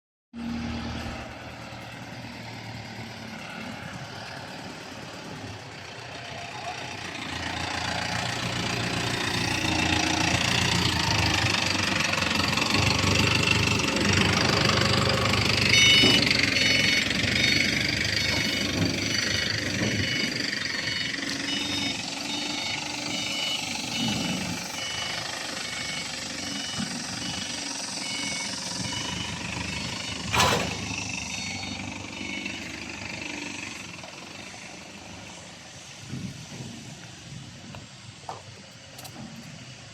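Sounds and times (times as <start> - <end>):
diesel engine running: 0.4 - 39.9
short electronic beeps: 15.6 - 32.7.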